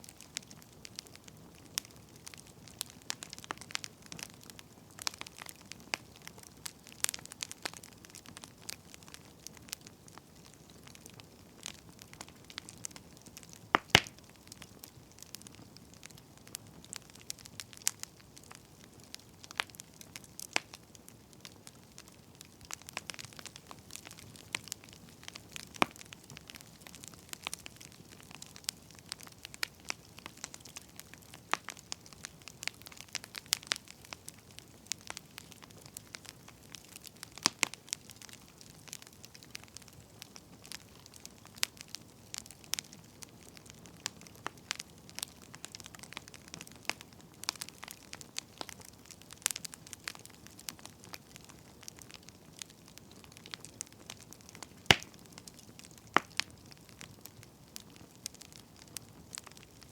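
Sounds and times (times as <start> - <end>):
faint steady hiss: 0.0 - 59.9
firewood crackling and popping: 0.0 - 59.9.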